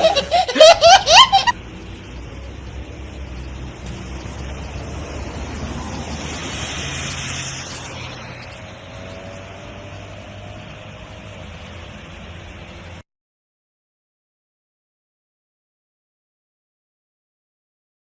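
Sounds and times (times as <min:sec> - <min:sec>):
street traffic noise: 0:00.0 - 0:13.0
vehicle passing by: 0:00.0 - 0:13.0.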